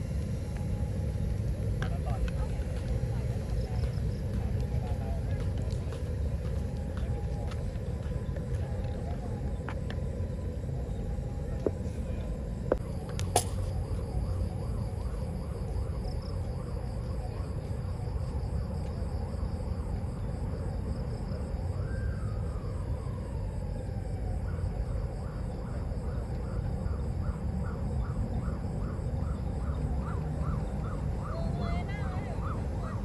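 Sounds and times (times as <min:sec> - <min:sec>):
low steady rumble: 0:00.0 - 0:17.8
insects trilling: 0:10.2 - 0:33.0.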